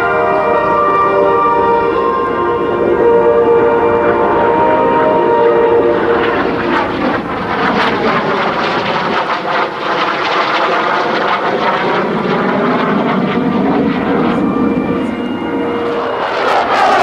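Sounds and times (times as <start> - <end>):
background music: 0.0 - 6.7
jet flying past: 0.0 - 17.0.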